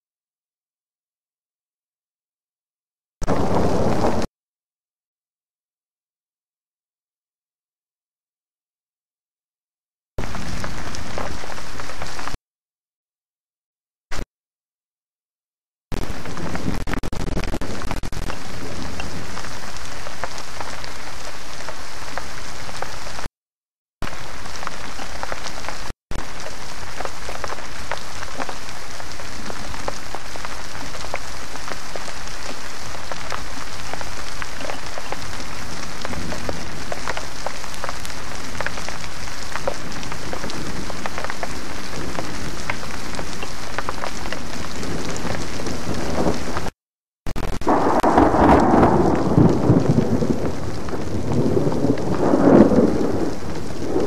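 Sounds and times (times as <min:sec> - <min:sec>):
heavy rain falling: 0:03.2 - 0:04.3, 0:10.2 - 0:12.4, 0:15.9 - 0:23.3, 0:24.0 - 0:54.0
thunder rumble: 0:03.2 - 0:04.3, 0:47.6 - 0:54.0.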